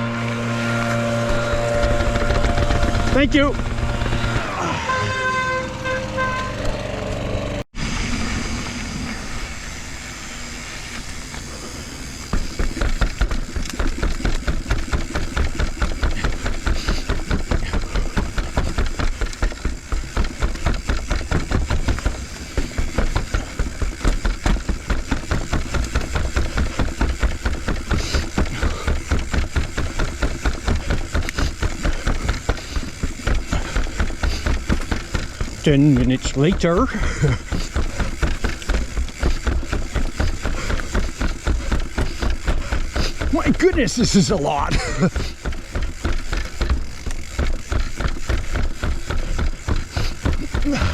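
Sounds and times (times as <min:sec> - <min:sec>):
bike thumping down stairs: 0:12.2 - 0:50.9.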